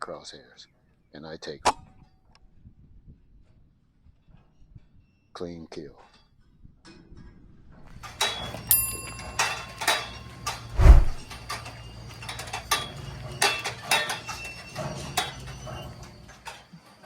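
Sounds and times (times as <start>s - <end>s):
steady low hum: 10.7s - 11.2s.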